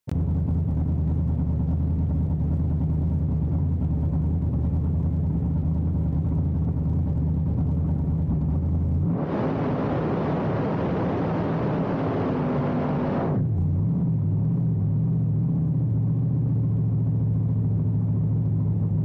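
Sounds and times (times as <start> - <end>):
car engine idling: 0.1 - 12.4.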